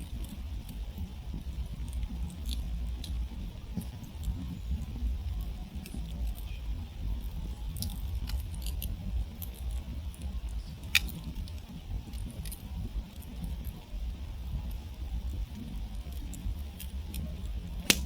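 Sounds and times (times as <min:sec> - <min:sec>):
campfire crackling: 0:00.0 - 0:18.0
low steady rumble: 0:00.0 - 0:18.0
sharp pop of fire: 0:17.8 - 0:18.0.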